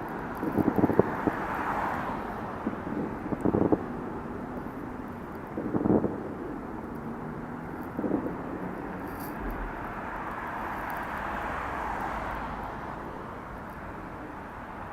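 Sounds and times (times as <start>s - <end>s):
road traffic noise: 0.0s - 14.9s
short dull thump: 9.4s - 9.9s.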